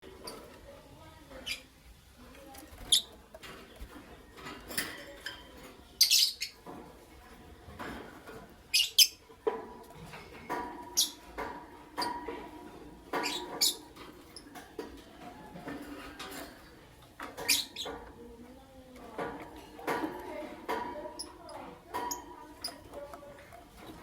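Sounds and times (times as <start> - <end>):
lovebirds chirping: 1.2 - 1.7, 2.4 - 4.3, 5.2 - 6.6, 8.6 - 9.2, 10.7 - 12.2, 13.1 - 15.6, 16.7 - 24.0
lower chattering bird calls: 6.0 - 6.6, 13.1 - 14.6, 17.3 - 18.1.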